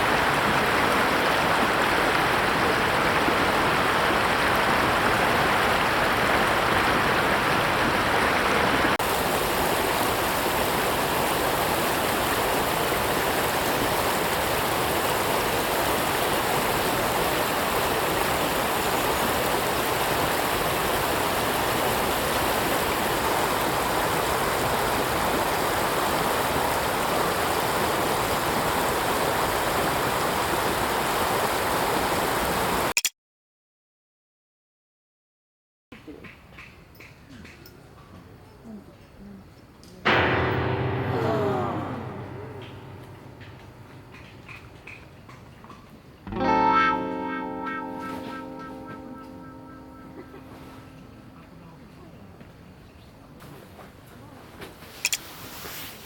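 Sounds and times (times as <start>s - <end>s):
flowing water rushing: 0.0s - 32.9s.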